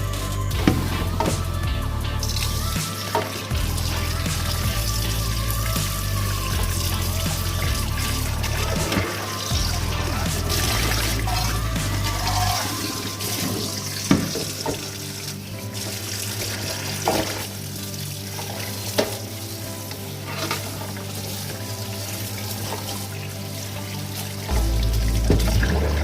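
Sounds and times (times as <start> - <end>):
tap water running into sink: 12.5 - 19.2.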